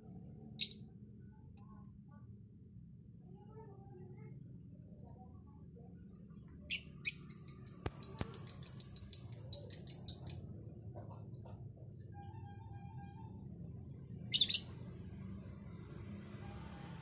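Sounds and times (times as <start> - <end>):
lovebird shrill chirps: 6.7 - 10.4, 14.3 - 14.7.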